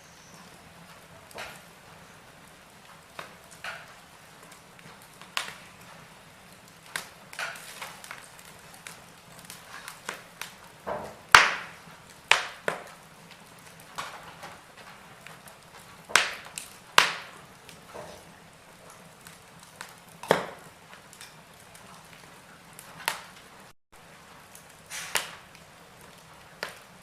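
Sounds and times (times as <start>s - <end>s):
wood fire crackling and popping: 0.0s - 27.0s.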